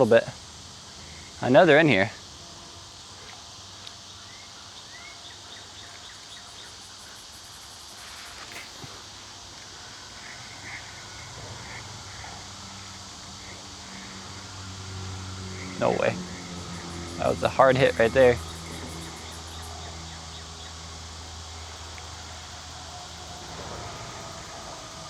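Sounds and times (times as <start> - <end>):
background hiss: 0.0 - 25.0
low hum: 9.8 - 25.0.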